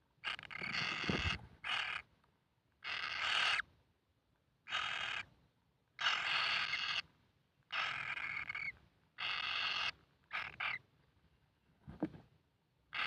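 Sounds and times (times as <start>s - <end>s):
bird chick harsh raspy calls: 0.2s - 2.1s, 2.8s - 3.6s, 4.7s - 5.3s, 6.0s - 7.1s, 7.7s - 10.8s.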